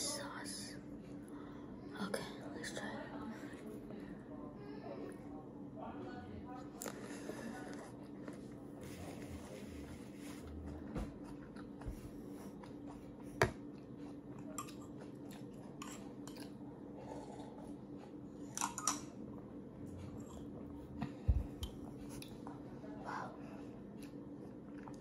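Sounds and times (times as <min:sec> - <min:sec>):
low hum: 0:00.0 - 0:25.0
person chewing: 0:09.9 - 0:17.8, 0:24.0 - 0:25.0.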